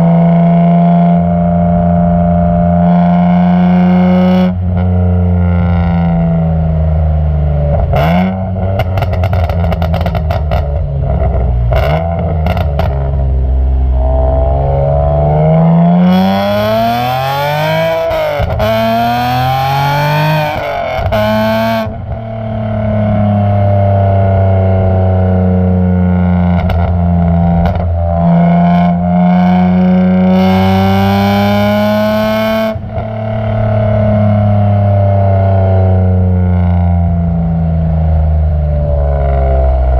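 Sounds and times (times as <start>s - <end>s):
car engine idling and revving: 0.0s - 39.9s
exhaust crackles and pops: 7.6s - 23.0s, 26.0s - 30.5s.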